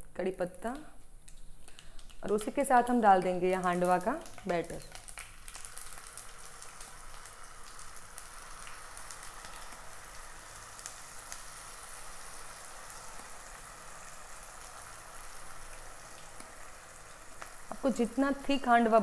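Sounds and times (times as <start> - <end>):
batter sizzling in oil: 1.3 - 19.0.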